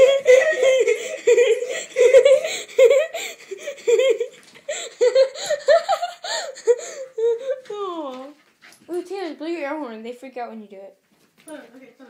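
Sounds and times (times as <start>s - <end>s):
high-pitched giggling: 0.0s - 7.8s.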